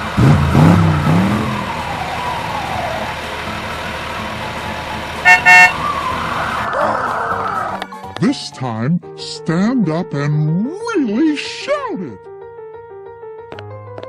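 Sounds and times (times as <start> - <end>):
car horn toots: 5.2 - 5.8.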